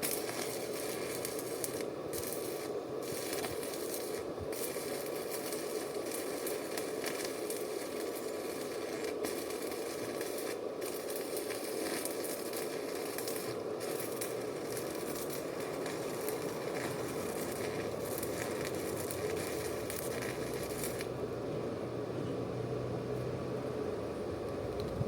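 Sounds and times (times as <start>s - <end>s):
arc welding crackling sizzle: 0.0s - 25.0s.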